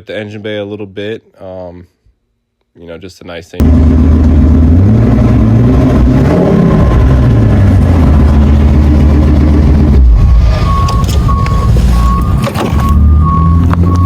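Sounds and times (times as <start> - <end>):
truck engine running: 3.6 - 14.0.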